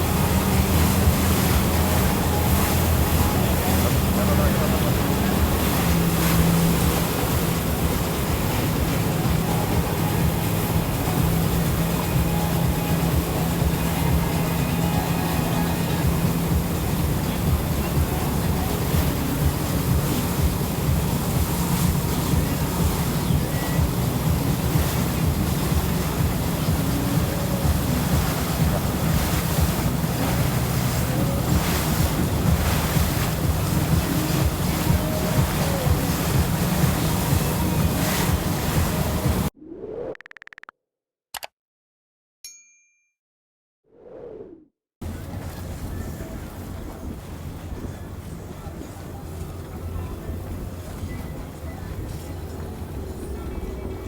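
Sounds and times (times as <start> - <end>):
motorboat engine humming: 0.0 - 39.5, 45.0 - 54.0
water rushing: 0.0 - 39.5, 45.0 - 54.0
wind buffeting microphone: 15.5 - 39.5.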